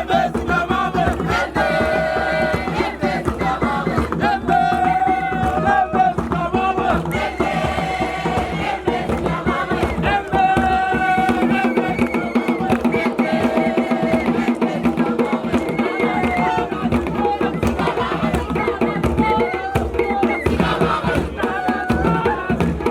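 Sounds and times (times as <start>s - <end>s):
group of voices chanting: 0.0s - 12.0s, 12.6s - 19.2s, 20.5s - 22.9s
steady percussion beat: 0.0s - 22.9s.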